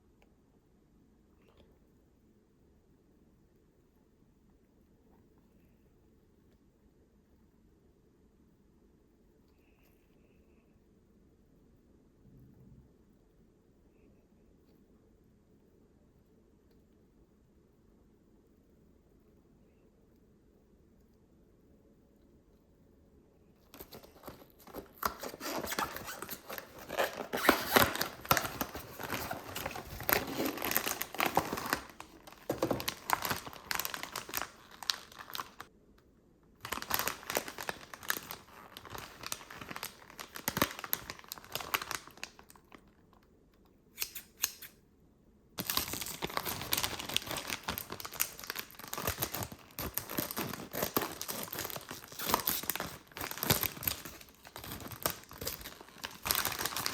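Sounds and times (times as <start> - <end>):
plastic packaging crinkling and tearing: 23.6 - 35.7, 36.6 - 43.0, 45.6 - 56.9.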